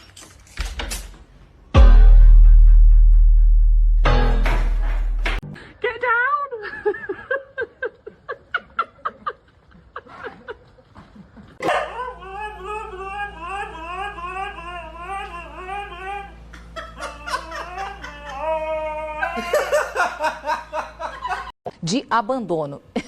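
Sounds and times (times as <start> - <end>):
people laughing: 6.6 - 21.5
dog howling: 11.6 - 16.4.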